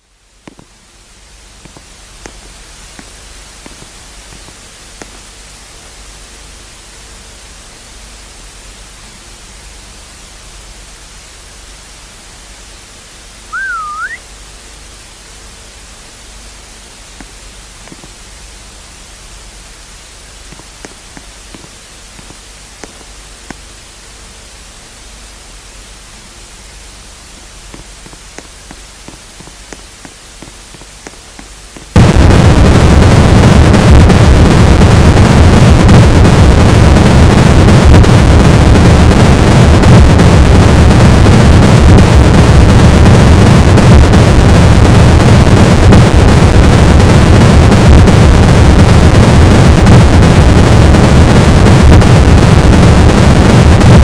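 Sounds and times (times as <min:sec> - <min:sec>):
static hiss: 0:00.0 - 0:54.0
rising whistle: 0:13.5 - 0:14.3
low hum: 0:17.4 - 0:44.1.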